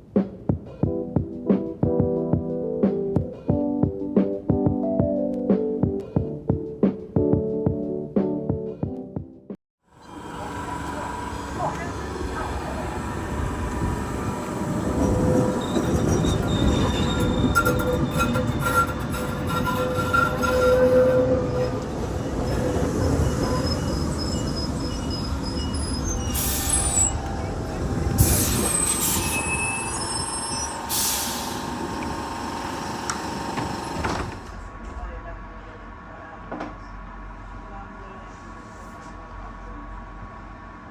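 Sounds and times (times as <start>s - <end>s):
high wheel squealing: 10.0s - 34.5s
tram rumbling on rails: 10.0s - 40.9s.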